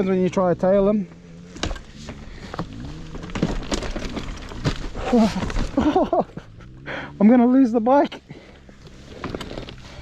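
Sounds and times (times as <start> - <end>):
dirt bike engine idling: 0.0 - 10.0
knocks and clatter: 1.5 - 6.6
person straining vocally: 5.0 - 6.0.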